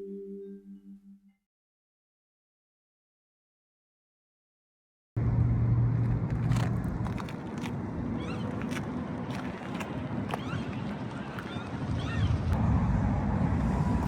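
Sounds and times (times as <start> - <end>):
low rumble: 11.9 - 14.0.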